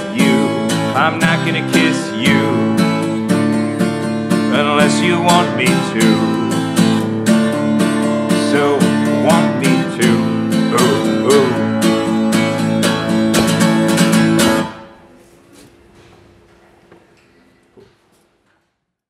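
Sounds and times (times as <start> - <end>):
acoustic guitar strumming: 0.0 - 15.2.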